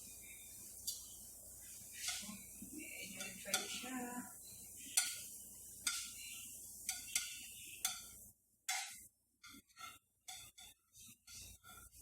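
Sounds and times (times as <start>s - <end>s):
utensil clinking against cookware: 2.0s - 4.2s, 4.9s - 12.0s.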